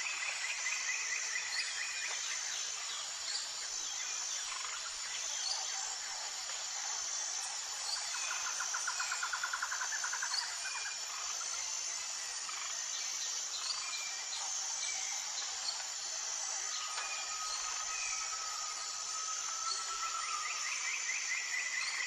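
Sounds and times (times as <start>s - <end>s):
high insect drone: 0.0s - 22.0s
steady whistle-like tone: 16.9s - 21.4s.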